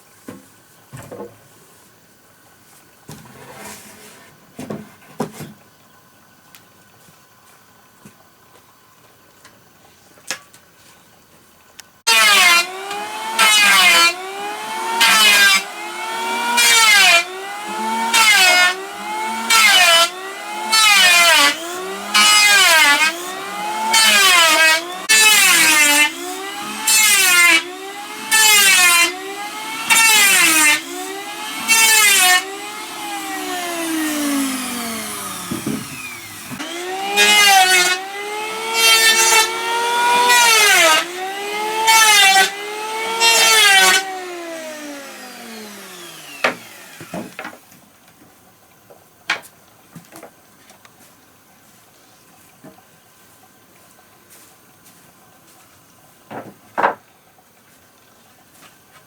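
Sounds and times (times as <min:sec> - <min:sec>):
power planer cutting wood: 0:12.1 - 0:47.6.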